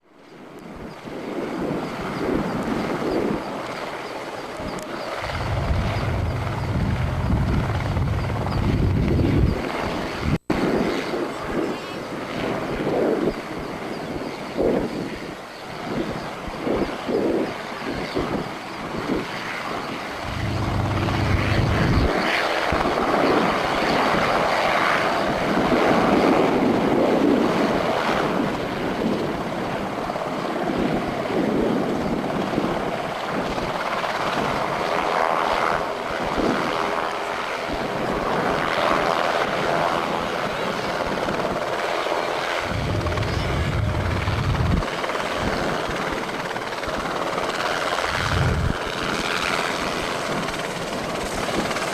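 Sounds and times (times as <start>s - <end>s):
helicopter engine and rotor: 0.2s - 51.9s
deep rumbles: 5.2s - 9.5s, 20.2s - 22.1s, 42.6s - 44.9s.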